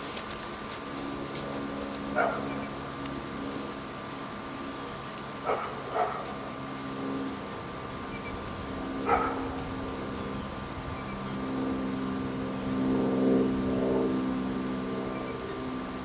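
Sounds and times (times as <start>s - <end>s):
steady low hum: 0.0s - 16.0s
dog barking: 2.2s - 2.6s, 5.4s - 6.4s, 9.0s - 9.6s.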